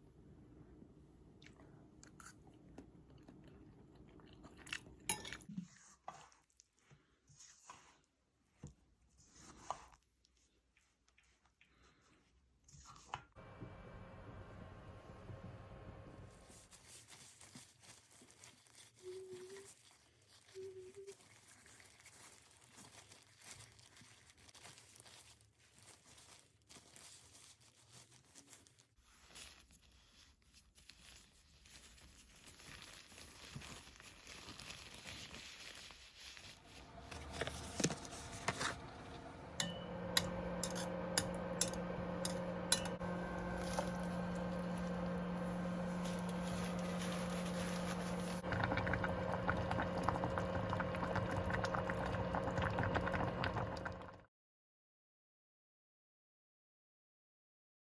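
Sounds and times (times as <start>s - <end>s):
low hum: 13.4s - 16.3s, 36.6s - 54.2s
wet dough handling: 16.2s - 48.6s.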